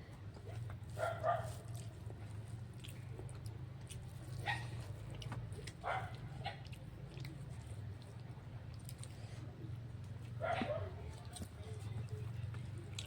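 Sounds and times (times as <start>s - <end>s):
chewing and mouth clicks: 0.0s - 13.0s.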